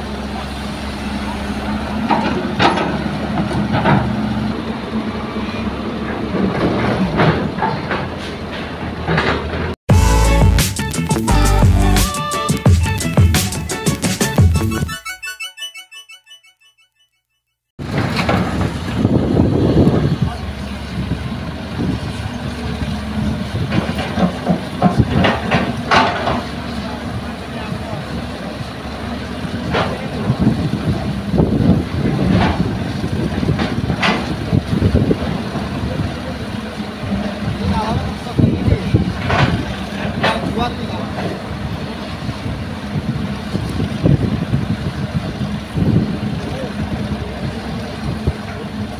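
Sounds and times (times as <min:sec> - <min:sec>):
heavy diesel machinery running: 0:00.0 - 0:15.0, 0:17.8 - 0:48.9
excavator clanks and scrapes: 0:00.2 - 0:09.8, 0:17.8 - 0:44.2
metal clanks and knocks: 0:02.0 - 0:04.2, 0:06.1 - 0:09.8, 0:23.7 - 0:26.6, 0:39.2 - 0:41.4.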